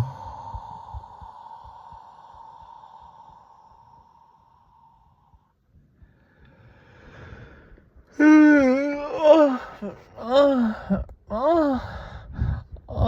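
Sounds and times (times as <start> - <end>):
man exhaling: 0.0 - 5.4
man moaning: 8.1 - 11.9.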